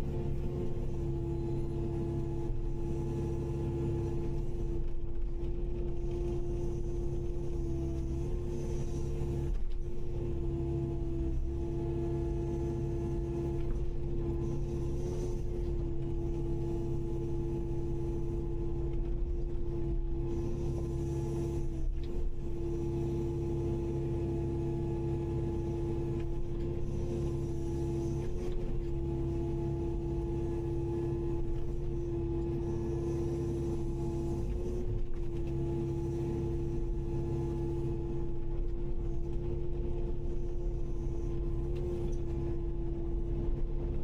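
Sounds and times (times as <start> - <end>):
excavator engine and hydraulics: 0.0 - 44.0.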